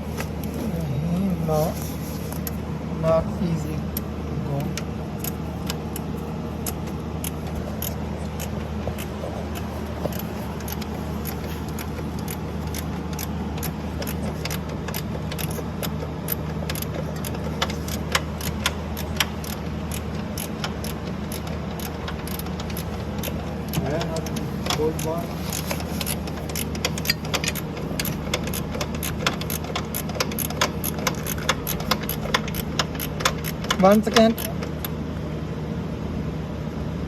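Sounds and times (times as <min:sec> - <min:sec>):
steady low hum: 0:00.0 - 0:37.0
metal clicks of hand tools: 0:04.7 - 0:34.9.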